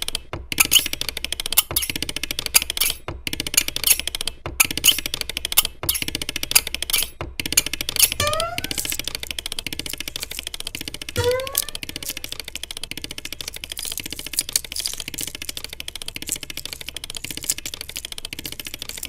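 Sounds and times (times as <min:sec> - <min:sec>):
rapid dense clicking: 0:00.0 - 0:19.0
rising squeak-like cry: 0:08.2 - 0:09.1, 0:11.2 - 0:12.4.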